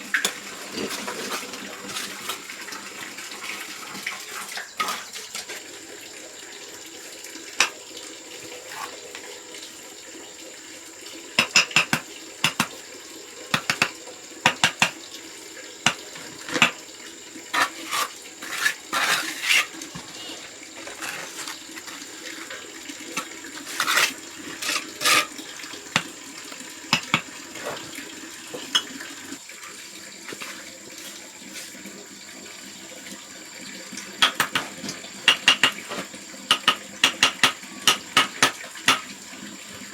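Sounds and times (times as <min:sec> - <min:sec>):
running water hiss: 0:00.0 - 0:39.9
sharp clinks and scrapes: 0:23.7 - 0:25.4.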